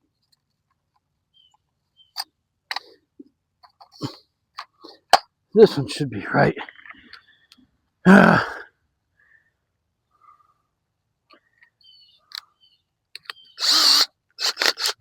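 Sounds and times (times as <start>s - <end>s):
man sighing: 8.1s - 8.7s.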